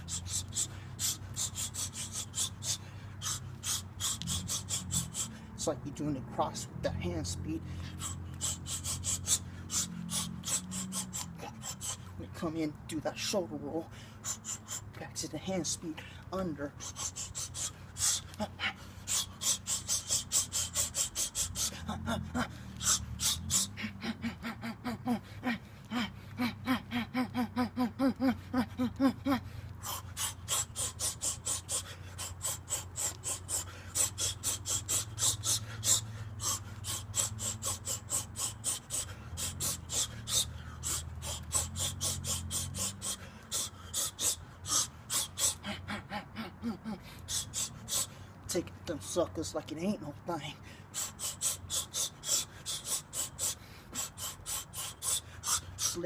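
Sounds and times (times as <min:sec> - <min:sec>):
sharp hissing exhalations: 0:00.0 - 0:05.6, 0:07.7 - 0:12.1, 0:16.8 - 0:23.8, 0:29.7 - 0:45.7, 0:50.7 - 0:56.0
steady low hum: 0:00.0 - 0:56.0.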